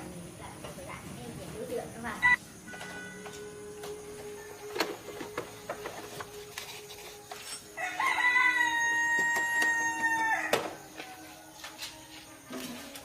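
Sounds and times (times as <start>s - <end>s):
rooster crowing: 7.8s - 11.6s.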